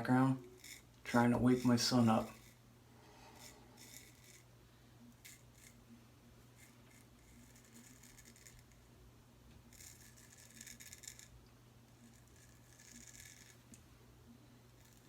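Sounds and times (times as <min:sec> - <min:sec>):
low steady hum: 0:00.0 - 0:15.0
straight razor scraping stubble: 0:00.4 - 0:02.6, 0:03.3 - 0:04.5, 0:05.2 - 0:05.8, 0:06.6 - 0:08.8, 0:09.7 - 0:11.3, 0:12.0 - 0:13.8.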